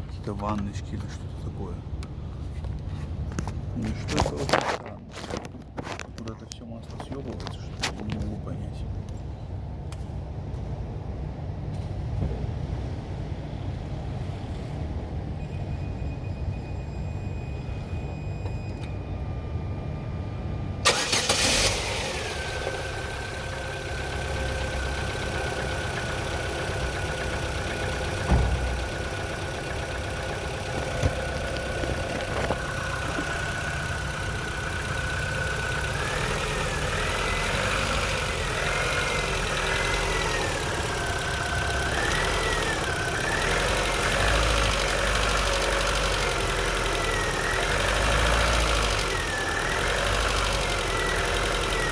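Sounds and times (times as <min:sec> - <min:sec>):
car engine starting and idling: 0:18.8 - 0:51.9.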